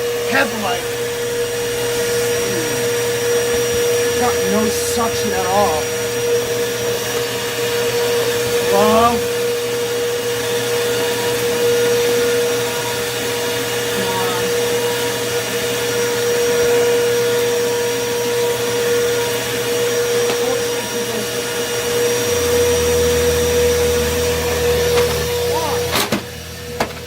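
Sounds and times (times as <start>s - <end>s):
low hum: 0.0s - 27.0s
vacuum cleaner motor whine: 0.0s - 27.0s.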